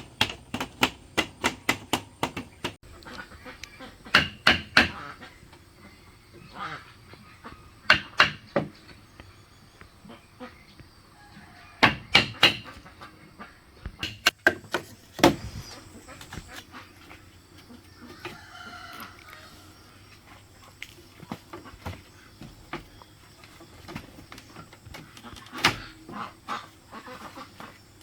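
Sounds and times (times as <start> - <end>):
sharp knocks: 0.0 - 2.8, 4.1 - 5.0, 7.9 - 8.8, 11.8 - 12.8
chickens clucking: 2.2 - 28.0
rooster crowing: 11.1 - 12.2, 18.0 - 20.2.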